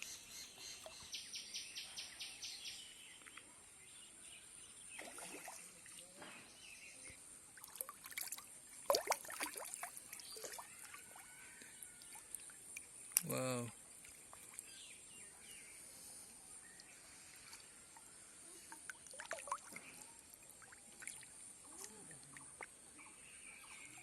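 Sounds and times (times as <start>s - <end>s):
water splashing and sloshing: 4.9s - 6.3s, 7.5s - 14.8s, 16.8s - 22.8s.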